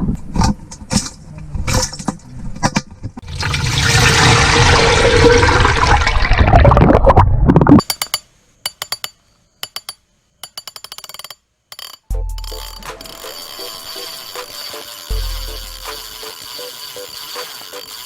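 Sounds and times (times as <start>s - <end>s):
rushing bubbling water: 3.2s - 7.8s.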